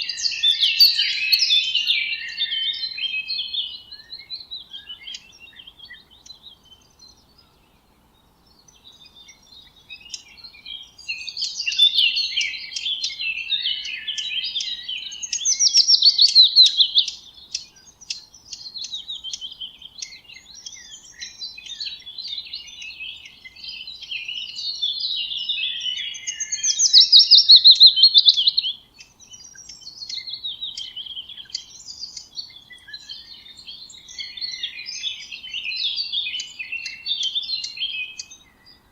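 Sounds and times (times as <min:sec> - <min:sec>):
loud rapid bird trills: 0:00.0 - 0:03.3
songbirds singing and chirping: 0:00.0 - 0:38.9.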